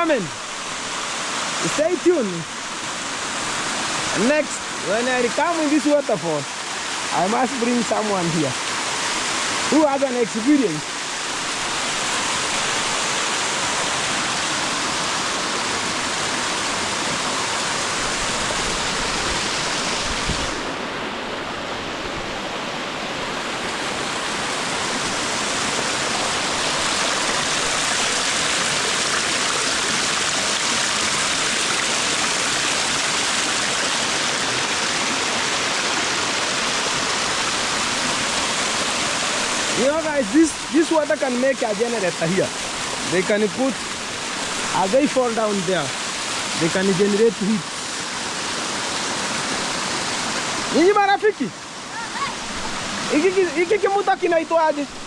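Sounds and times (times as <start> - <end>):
waterfall pouring: 24.4 - 55.0.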